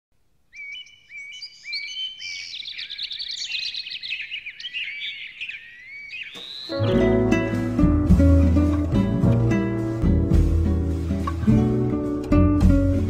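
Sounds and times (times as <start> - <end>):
birds chirping and singing: 0.5 - 7.7.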